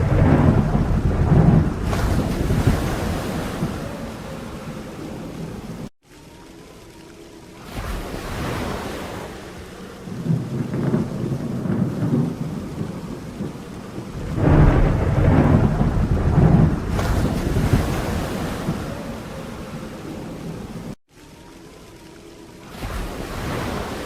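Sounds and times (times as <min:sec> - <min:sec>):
rolling thunder: 0:00.0 - 0:05.9, 0:10.0 - 0:21.0
rain falling steadily: 0:00.0 - 0:24.0.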